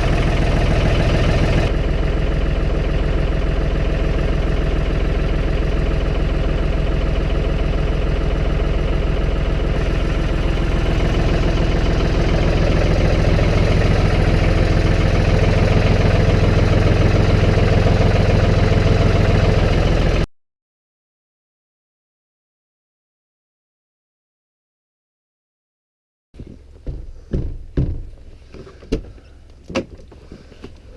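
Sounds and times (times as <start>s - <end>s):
snowplow engine running: 0.0s - 20.3s.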